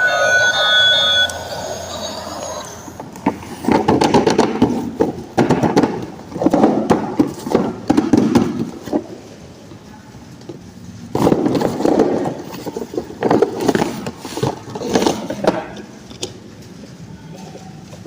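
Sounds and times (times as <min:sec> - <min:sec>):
toy electronic tone: 0:00.0 - 0:03.0.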